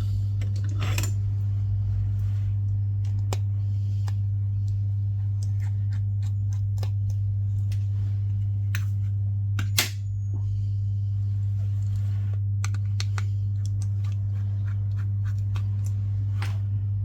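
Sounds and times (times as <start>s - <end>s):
loud low hum: 0.0s - 17.0s.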